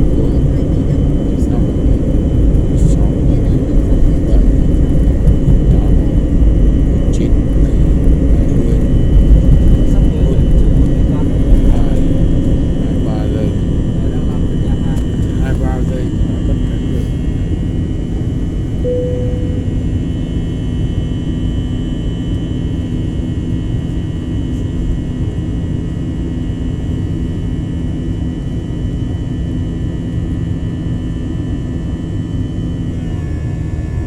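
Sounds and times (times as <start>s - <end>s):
steady whining tones: 0.0s - 23.0s
jet engine cabin rumble: 0.0s - 34.0s
short single tone: 18.8s - 20.3s.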